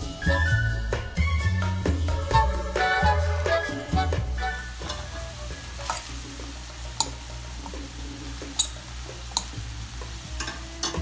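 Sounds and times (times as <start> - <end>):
chicken and garlic sizzling in a pot: 2.9 - 11.0
spatula clinking against pot: 4.8 - 5.1, 7.0 - 7.2, 8.5 - 9.6, 10.4 - 11.0.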